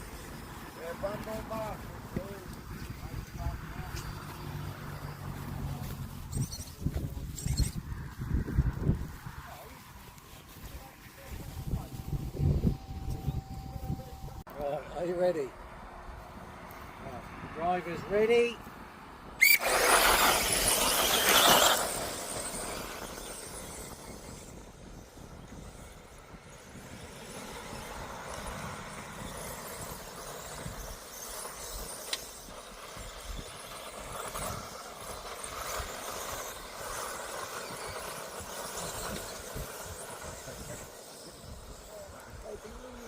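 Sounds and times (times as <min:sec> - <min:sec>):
electric rc cars whining: 0:00.0 - 0:18.6, 0:19.2 - 0:43.0.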